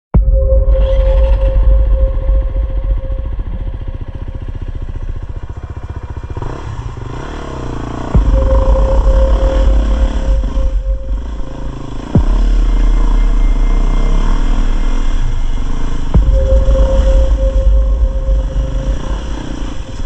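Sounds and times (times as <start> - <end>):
dirt bike engine running: 2.3 - 20.0
sharp knock: 16.2 - 19.8.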